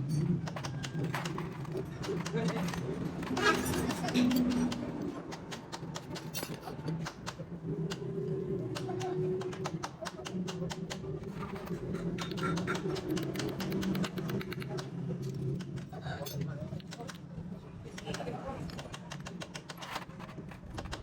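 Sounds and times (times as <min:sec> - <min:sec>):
metal parts being handled: 0:00.0 - 0:04.8, 0:06.0 - 0:07.1, 0:18.6 - 0:21.0
hand tools clicking and tapping: 0:00.0 - 0:17.2, 0:18.0 - 0:21.0
murmur of voices: 0:07.9 - 0:19.7.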